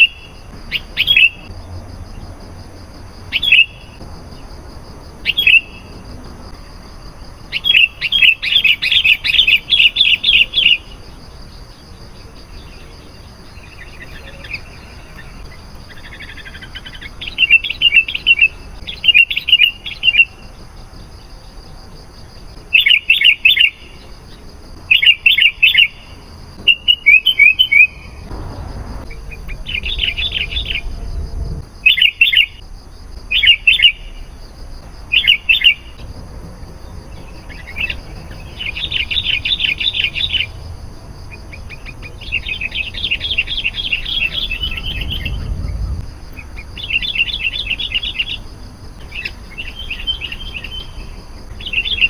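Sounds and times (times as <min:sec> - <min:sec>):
low rumble of noise: 0:28.0 - 0:33.3, 0:40.2 - 0:47.7.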